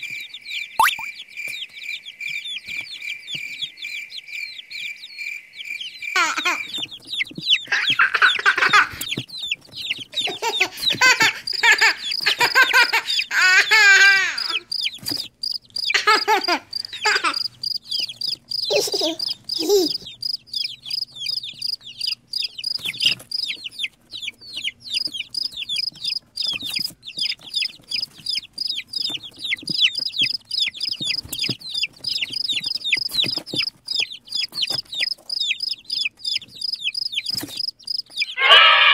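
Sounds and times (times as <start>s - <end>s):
chicks peeping: 0.0s - 38.9s
chickens squawking: 6.0s - 38.9s.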